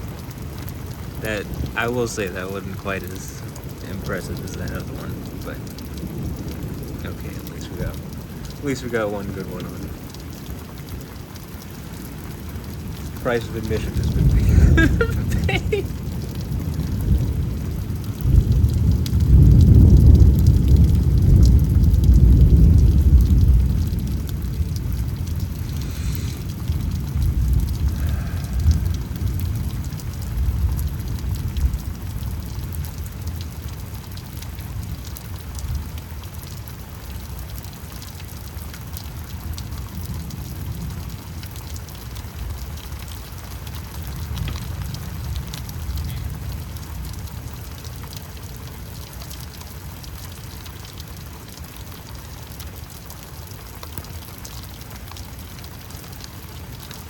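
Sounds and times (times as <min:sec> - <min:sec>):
thunder rumbling: 0:00.0 - 0:33.5
steady rain: 0:00.0 - 0:57.0.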